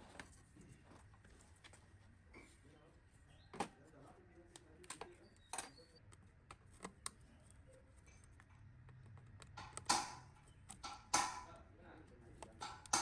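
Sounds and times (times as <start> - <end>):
tools clicking and tapping: 8.0 - 11.6, 12.4 - 13.0.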